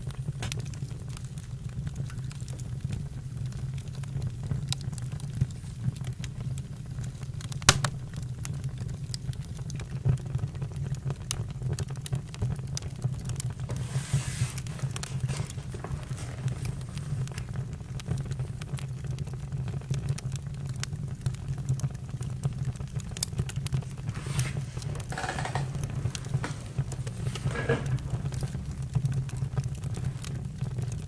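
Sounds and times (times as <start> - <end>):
campfire crackling: 0.0 - 31.0
fire hissing: 7.4 - 8.3, 12.9 - 18.8, 22.2 - 30.9.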